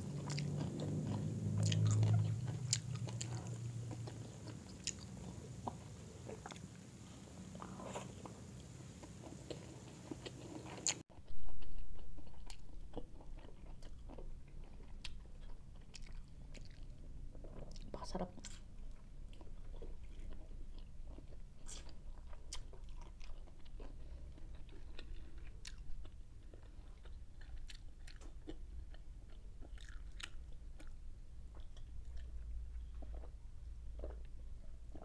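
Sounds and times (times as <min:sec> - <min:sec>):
person chewing and biting chicken: 0:00.2 - 0:06.6, 0:19.3 - 0:30.9.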